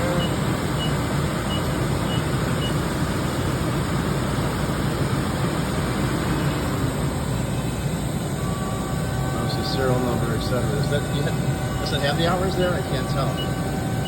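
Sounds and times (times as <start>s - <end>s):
machinery drone: 0.0s - 14.0s
faint high beeps: 11.3s - 13.8s.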